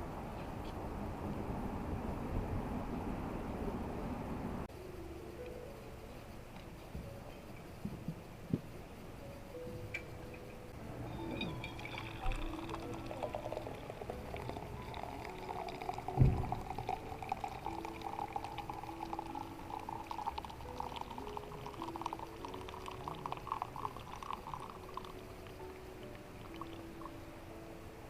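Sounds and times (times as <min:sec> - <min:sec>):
liquid pouring into container: 0:11.4 - 0:27.1
thump: 0:16.2 - 0:16.6.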